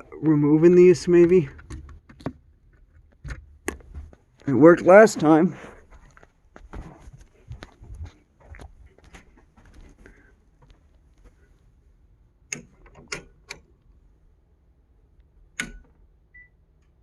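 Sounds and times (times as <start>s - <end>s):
circuit breaker toggle clicking: 15.6s - 15.8s.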